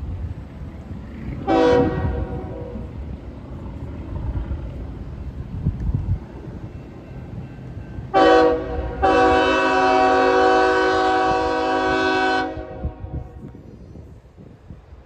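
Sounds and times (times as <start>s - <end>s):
locomotive air horn chord: 1.4s - 2.8s, 8.1s - 13.4s.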